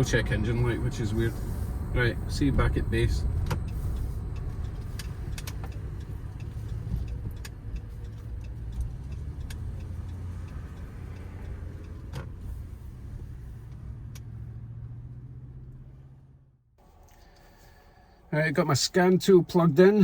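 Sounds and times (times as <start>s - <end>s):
misfiring engine rumble: 0.0s - 20.0s.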